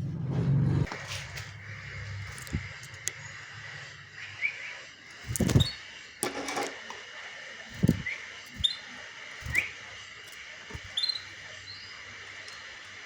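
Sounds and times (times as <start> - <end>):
canary chirping: 1.0 - 6.2, 7.7 - 13.0.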